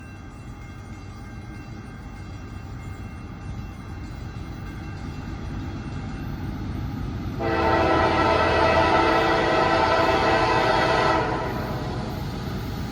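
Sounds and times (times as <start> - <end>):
train horn chord: 7.4 - 12.0.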